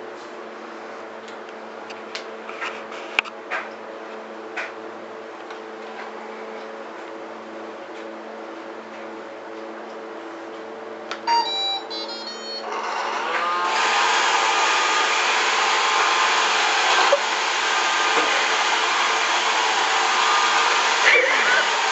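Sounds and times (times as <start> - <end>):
electronic beeps: 11.3 - 12.7
robot vacuum motor running: 12.6 - 21.9.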